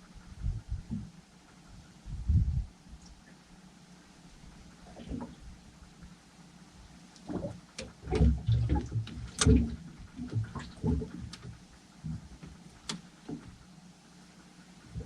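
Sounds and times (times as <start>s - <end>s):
knocks and thumps on boat deck: 7.3s - 13.6s.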